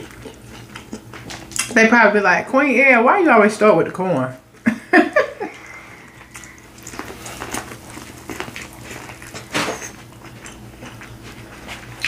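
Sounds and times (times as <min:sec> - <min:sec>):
biting and chewing corn: 0:00.0 - 0:01.7, 0:06.1 - 0:12.0.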